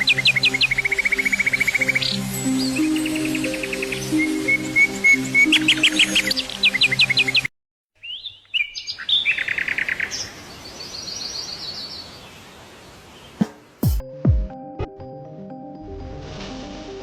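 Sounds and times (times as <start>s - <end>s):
bird trill: 0.0s - 12.0s
rising whistled bird calls: 0.0s - 12.1s
bird chirps: 0.0s - 12.5s.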